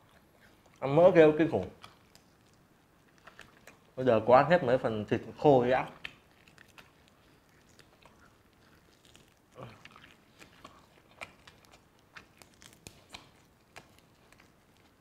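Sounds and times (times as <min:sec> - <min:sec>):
faint chewing: 0:00.0 - 0:15.0
mouth clicks and smacks: 0:01.5 - 0:04.0, 0:05.8 - 0:15.0.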